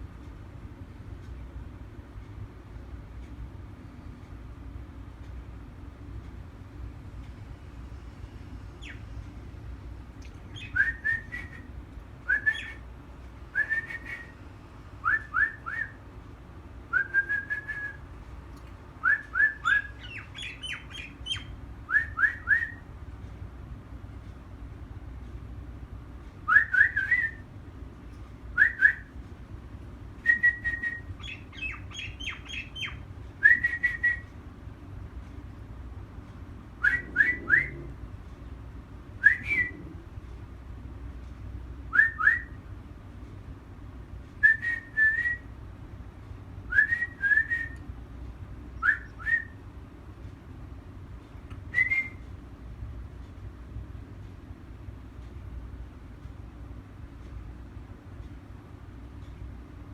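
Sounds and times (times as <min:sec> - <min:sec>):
low background noise: 0:00.0 - 0:59.9
bird whistling calls: 0:08.8 - 0:09.1, 0:10.5 - 0:12.8, 0:13.6 - 0:14.4, 0:15.0 - 0:16.0, 0:19.0 - 0:22.8, 0:26.5 - 0:27.4, 0:28.6 - 0:29.1, 0:30.2 - 0:34.3, 0:36.8 - 0:37.9, 0:39.2 - 0:39.8, 0:41.9 - 0:42.6, 0:46.7 - 0:47.8, 0:48.8 - 0:49.6.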